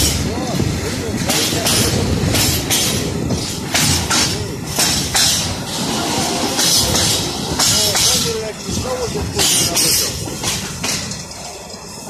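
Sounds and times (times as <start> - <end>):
freight train wheels rumbling: 0.0 - 12.0
wagons clanking and rattling: 0.0 - 12.0.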